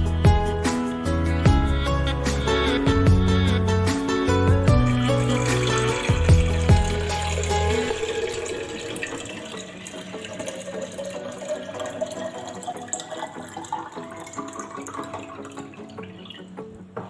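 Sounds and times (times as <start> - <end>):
tap water filling container: 4.8 - 16.5.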